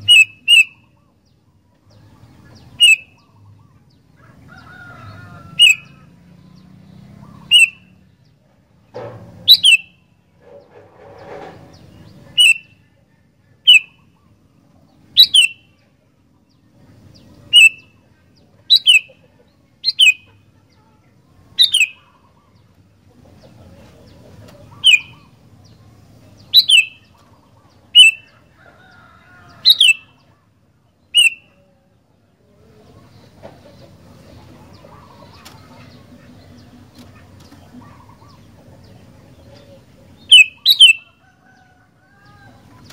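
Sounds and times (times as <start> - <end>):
bird calling sharp notes: 0.0 - 1.2, 2.7 - 3.4, 5.5 - 6.1, 7.1 - 8.0, 9.5 - 10.0, 12.3 - 12.8, 13.6 - 14.2, 15.2 - 15.7, 17.5 - 18.0, 18.7 - 19.2, 19.8 - 20.4, 21.6 - 22.4, 24.7 - 25.5, 26.5 - 27.3, 27.9 - 28.4, 29.6 - 30.3, 31.1 - 31.6, 40.3 - 41.2.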